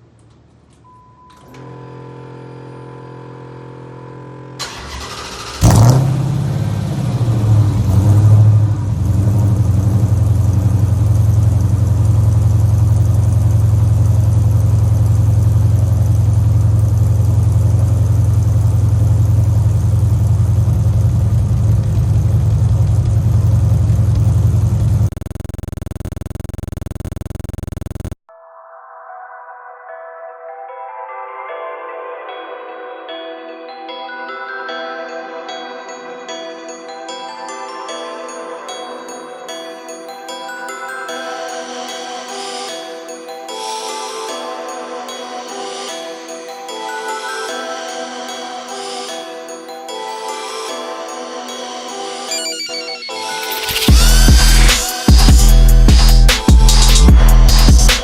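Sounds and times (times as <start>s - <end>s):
car engine starting and idling: 1.3s - 28.2s, 53.8s - 58.0s
steady hum: 7.2s - 28.2s.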